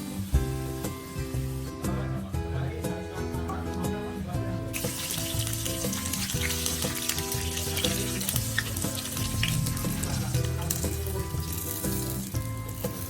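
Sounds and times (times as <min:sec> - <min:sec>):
food sizzling in hot oil: 0:00.0 - 0:02.0, 0:04.7 - 0:13.0.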